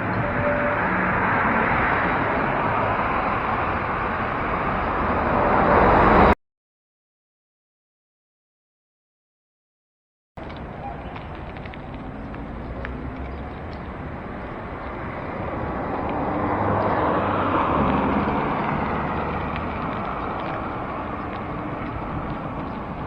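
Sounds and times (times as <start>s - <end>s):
road traffic rushing: 0.0s - 6.4s, 10.4s - 23.0s
motor vehicle passing close: 0.8s - 6.4s, 11.4s - 23.0s.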